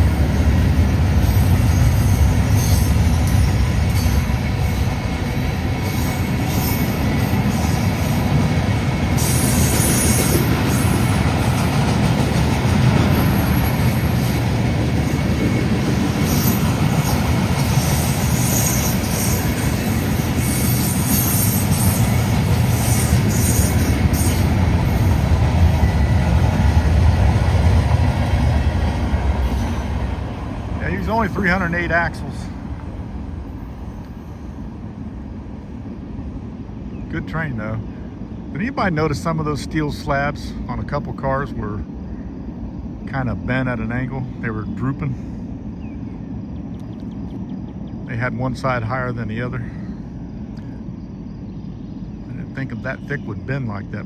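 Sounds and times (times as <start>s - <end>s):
train wheels rumbling on rail: 0.0s - 54.0s
high-pitched wheel squeal: 1.2s - 5.0s, 16.2s - 25.1s.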